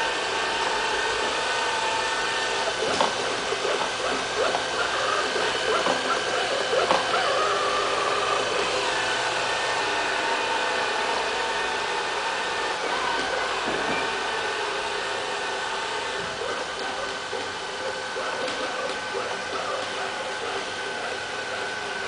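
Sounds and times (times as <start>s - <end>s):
robot vacuum cleaner running: 0.0s - 22.0s.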